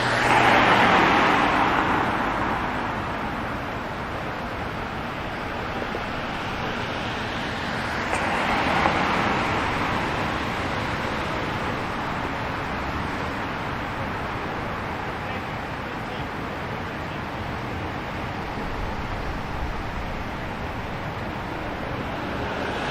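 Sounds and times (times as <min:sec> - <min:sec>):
vehicle passing close by: 0:00.0 - 0:13.9
city traffic hum: 0:00.0 - 0:22.9.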